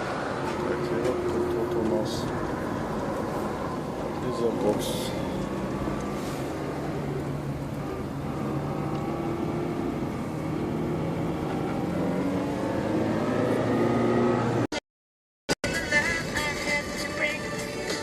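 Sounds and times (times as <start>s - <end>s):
vehicle engine running: 0.0s - 12.9s.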